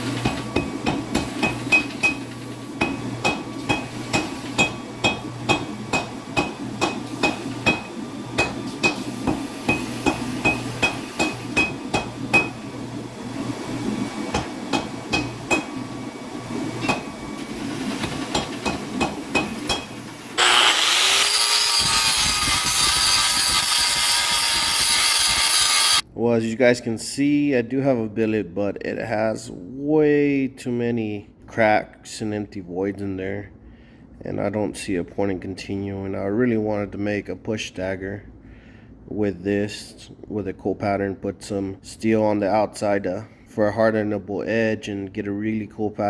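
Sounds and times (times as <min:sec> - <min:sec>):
steady background hum: 0:00.0 - 0:24.2, 0:26.0 - 0:46.0
hammer striking metal on anvil: 0:02.8 - 0:12.6, 0:14.3 - 0:15.7
power tool running loudly: 0:19.8 - 0:26.0.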